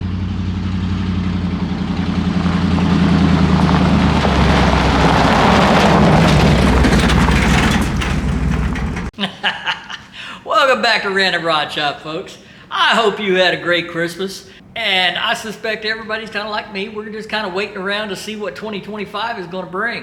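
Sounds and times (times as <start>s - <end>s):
vehicle engine revving: 0.0s - 9.1s.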